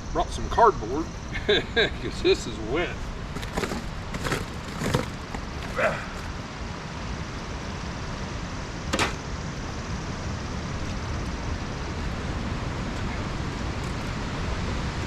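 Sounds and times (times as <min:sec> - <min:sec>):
short rustles: 0:03.2 - 0:06.4.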